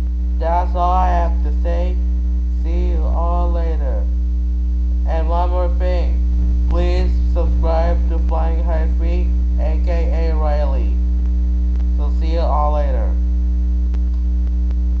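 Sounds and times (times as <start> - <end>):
electrical mains hum: 0.0 - 15.0
person speaking: 0.4 - 4.1, 5.1 - 11.0, 11.9 - 13.2.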